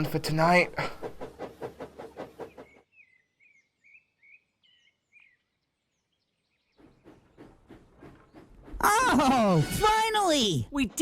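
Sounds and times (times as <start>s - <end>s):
faint bird chirps: 2.5s - 8.5s.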